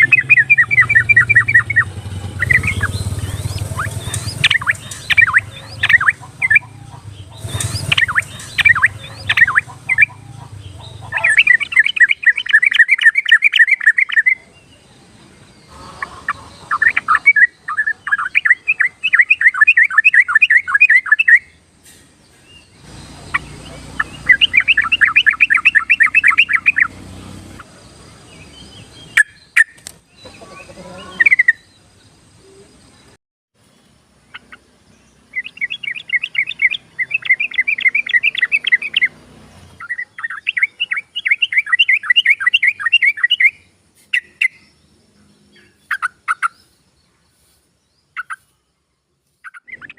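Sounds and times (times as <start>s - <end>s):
bird rapid repeated notes: 0.0s - 14.4s, 15.7s - 21.6s, 22.8s - 27.7s, 34.3s - 44.6s
bulbul chirps and song: 0.0s - 49.9s.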